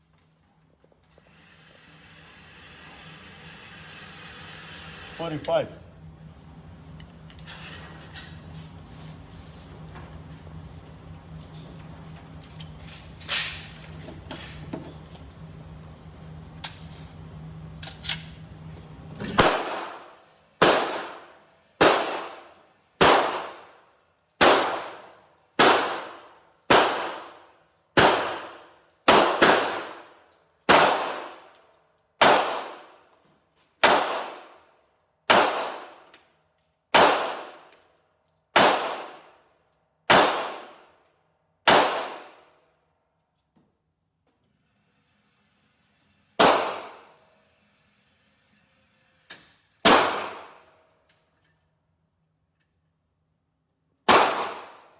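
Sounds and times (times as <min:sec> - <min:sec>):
steady hum: 0:01.4 - 0:23.8
pistol shots: 0:19.4 - 0:23.8, 0:24.4 - 0:27.4, 0:28.0 - 0:30.1, 0:30.7 - 0:31.5, 0:32.2 - 0:33.0, 0:33.8 - 0:34.6, 0:35.3 - 0:36.0, 0:36.9 - 0:37.7, 0:38.6 - 0:39.4, 0:40.1 - 0:40.8, 0:41.6 - 0:42.4, 0:46.4 - 0:47.1, 0:49.8 - 0:50.6, 0:54.1 - 0:54.9
sharp cracks: 0:35.3 - 0:36.0, 0:37.0 - 0:37.7, 0:38.6 - 0:39.2.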